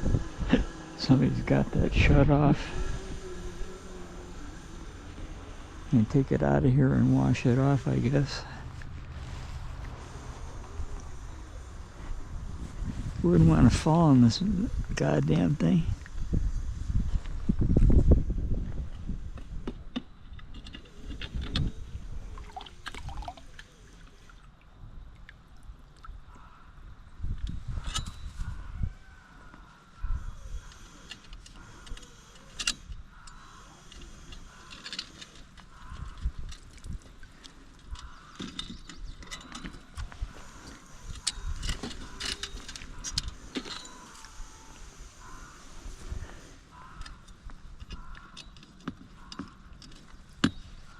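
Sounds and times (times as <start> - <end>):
low uneven rumble: 0.0 - 19.6
metal clinks and knocks: 37.9 - 40.1.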